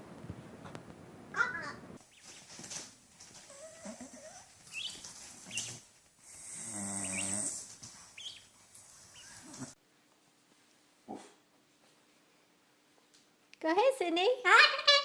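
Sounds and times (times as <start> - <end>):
bird low buzzing rasp: 5.5 - 8.4.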